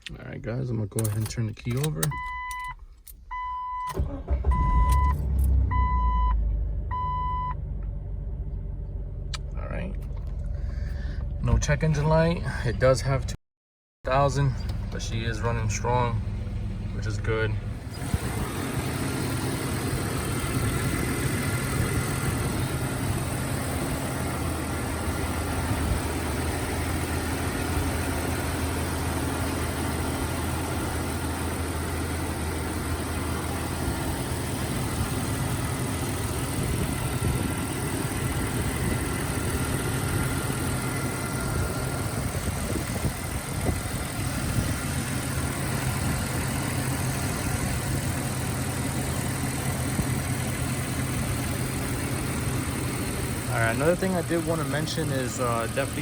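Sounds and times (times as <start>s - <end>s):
car engine idling: 6.5s - 13.3s, 14.1s - 56.0s.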